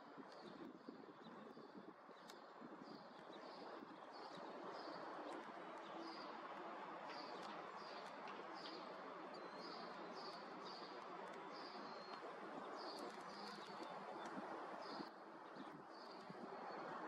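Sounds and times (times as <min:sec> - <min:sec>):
faint outdoor background hiss: 0:00.0 - 0:17.0
small bird chirping: 0:07.2 - 0:16.9.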